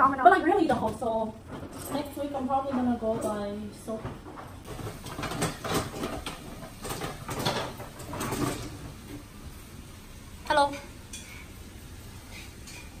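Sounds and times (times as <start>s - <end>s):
dishes clinking: 0.9s - 9.3s, 10.8s - 11.6s, 12.3s - 13.0s
cupboard or drawer sounds: 1.5s - 9.2s.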